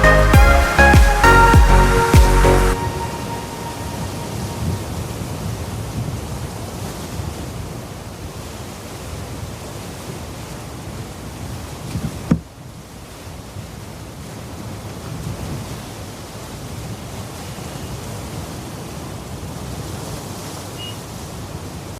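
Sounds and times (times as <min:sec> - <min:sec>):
sea surf: 0:00.0 - 0:21.9
wind: 0:00.0 - 0:21.9.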